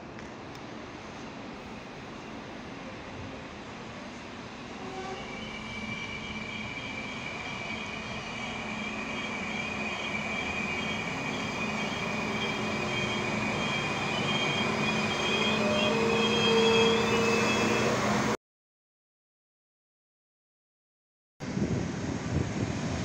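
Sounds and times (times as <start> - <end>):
diesel train engine: 0.5 - 18.4
high brake squeal: 4.8 - 18.1
lower squealing tone: 4.8 - 18.3.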